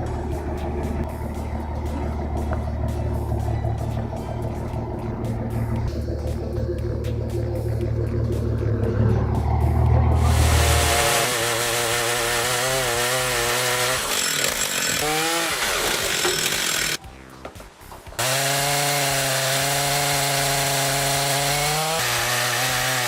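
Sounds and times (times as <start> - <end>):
chainsaw cutting wood: 10.2 - 17.0, 18.2 - 23.0.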